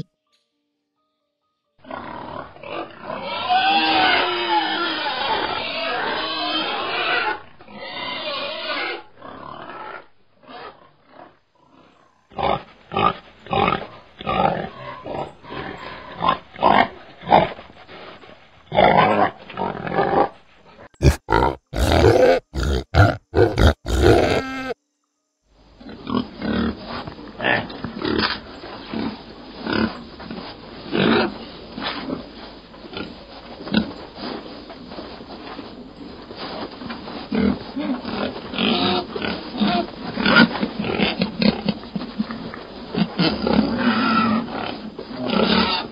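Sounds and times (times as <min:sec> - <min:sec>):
piglets grunting: 0:21.0 - 0:24.8.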